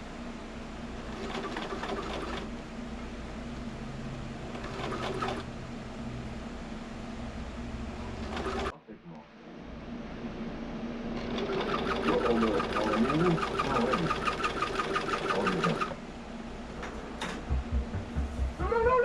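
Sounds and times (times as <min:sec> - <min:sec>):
sewing machine stitching: 0:01.0 - 0:02.5, 0:04.5 - 0:05.4, 0:08.2 - 0:08.7, 0:11.2 - 0:16.0.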